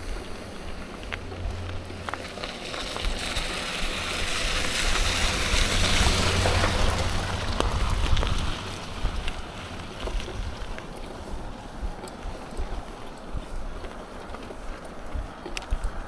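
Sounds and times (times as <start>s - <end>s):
bicycle tyres rolling hiss: 0.0s - 16.0s
wind buffeting microphone: 0.0s - 16.0s.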